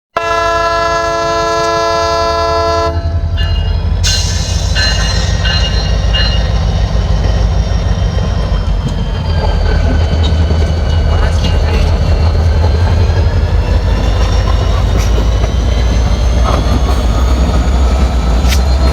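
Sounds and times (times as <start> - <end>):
train horn chord: 0.1 - 3.3
train rumbling: 0.2 - 18.9.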